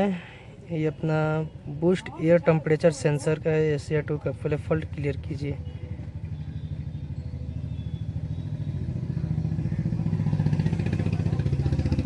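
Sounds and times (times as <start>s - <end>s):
engine idling: 3.0s - 12.0s.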